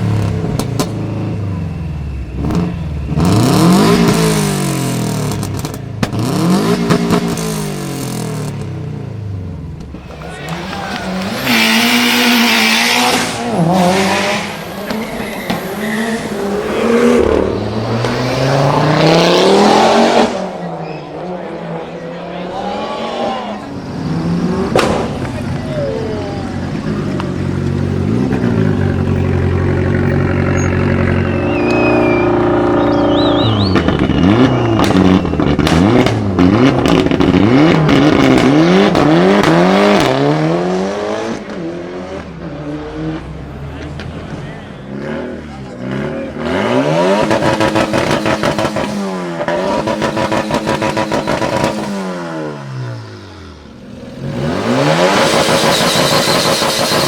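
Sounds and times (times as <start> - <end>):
car engines revving: 0.0 - 57.0
exhaust pops and bangs: 0.5 - 1.0, 24.7 - 25.7, 33.4 - 40.2.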